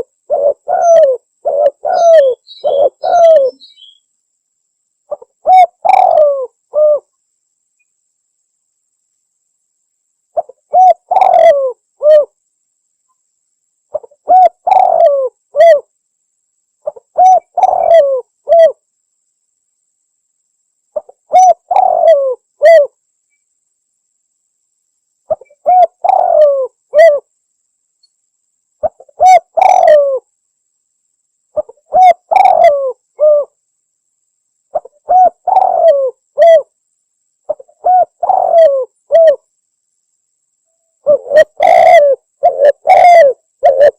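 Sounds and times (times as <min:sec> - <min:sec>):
dove cooing: 0:00.0 - 0:04.0, 0:05.1 - 0:07.1, 0:10.4 - 0:12.4, 0:13.9 - 0:15.9, 0:16.8 - 0:18.8, 0:21.0 - 0:23.0, 0:25.3 - 0:27.3, 0:28.8 - 0:30.3, 0:31.6 - 0:33.6, 0:34.7 - 0:36.7, 0:37.5 - 0:39.4, 0:41.0 - 0:43.9.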